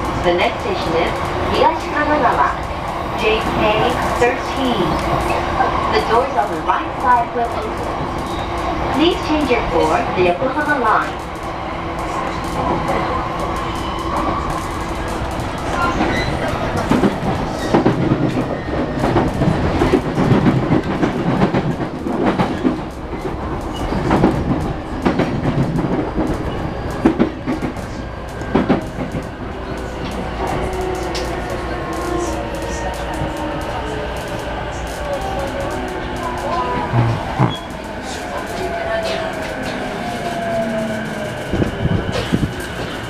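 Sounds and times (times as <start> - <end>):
train rumble: 0.0 - 43.0.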